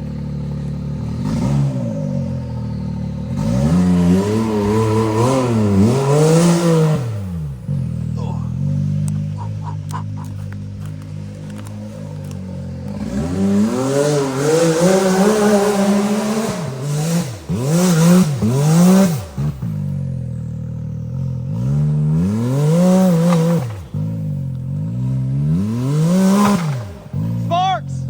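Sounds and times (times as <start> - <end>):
engine idling and revving: 0.0 - 28.0.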